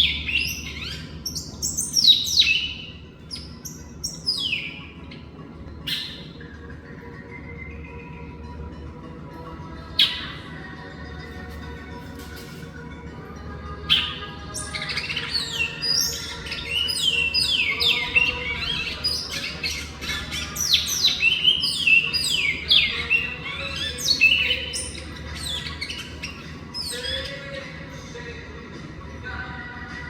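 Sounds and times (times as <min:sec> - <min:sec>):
bird whistled song: 0:00.0 - 0:08.4, 0:09.9 - 0:10.6, 0:13.8 - 0:28.2
steady faint hum: 0:00.0 - 0:30.0.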